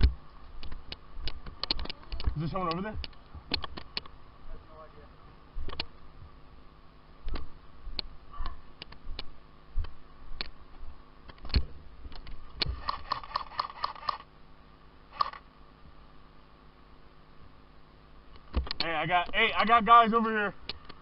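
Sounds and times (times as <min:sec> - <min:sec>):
faint steady hum: 0:00.0 - 0:21.0
airsoft guns firing: 0:12.7 - 0:14.2.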